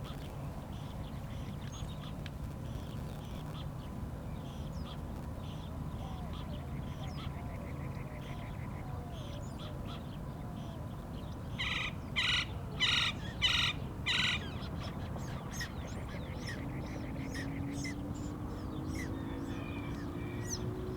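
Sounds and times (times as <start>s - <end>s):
birds chirping: 11.6s - 20.9s.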